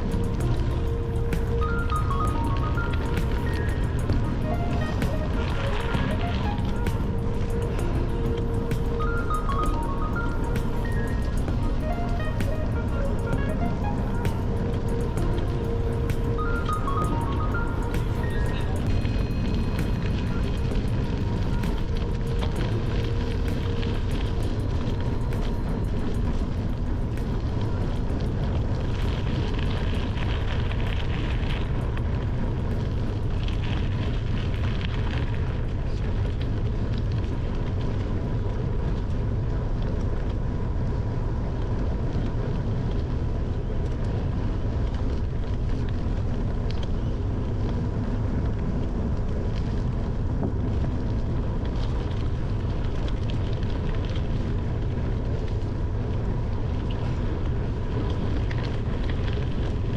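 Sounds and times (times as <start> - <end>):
bicycle tyres rolling on trail: 0.0 - 59.9
wind buffeting microphone: 0.0 - 59.9.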